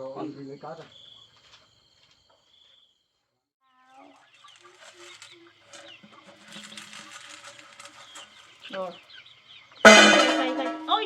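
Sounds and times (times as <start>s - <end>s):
insect chirping: 0.0s - 11.0s
chickens clucking and peeping: 3.7s - 11.0s.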